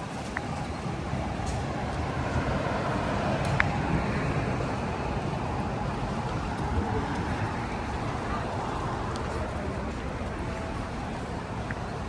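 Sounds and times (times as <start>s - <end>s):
passing traffic: 0.0s - 12.0s.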